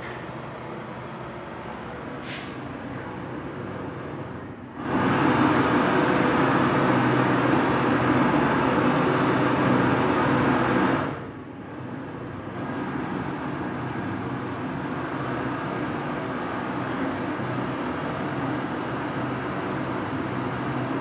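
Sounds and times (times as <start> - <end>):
refrigerant gas hissing: 2.2 - 2.8, 4.8 - 11.3.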